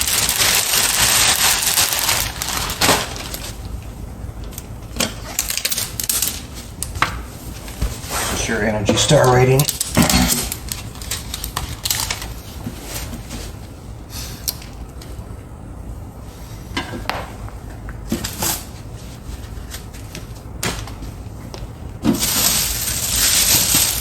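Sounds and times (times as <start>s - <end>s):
packaging rustling and scraping: 0.0s - 3.7s, 7.4s - 13.7s, 22.0s - 24.0s.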